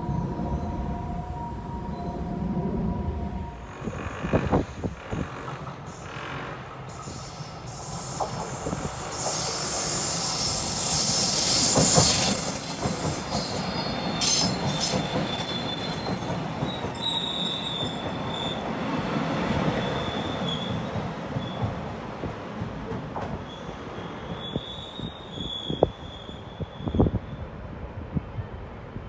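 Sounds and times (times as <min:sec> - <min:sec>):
train rumbling: 0:00.0 - 0:29.0
high wheel squeal: 0:03.6 - 0:21.6, 0:23.5 - 0:27.4
lower wheel squeal: 0:03.7 - 0:21.6, 0:23.5 - 0:27.4.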